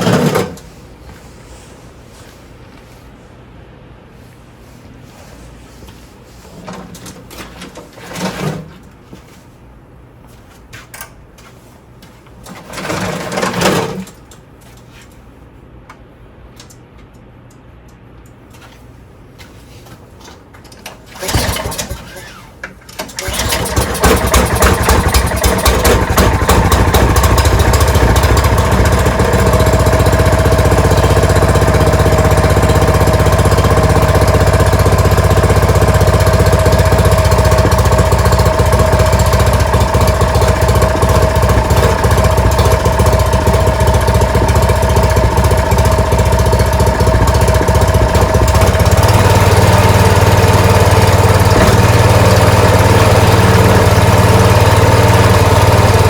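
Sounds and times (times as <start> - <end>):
snowblower engine running: 12.6 - 14.0, 21.1 - 22.5, 23.1 - 56.0.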